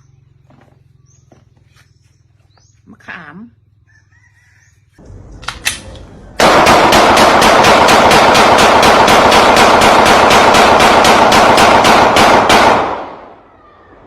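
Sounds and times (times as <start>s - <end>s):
continuous roar: 0.0s - 14.0s
rapid loud bangs: 6.4s - 13.1s.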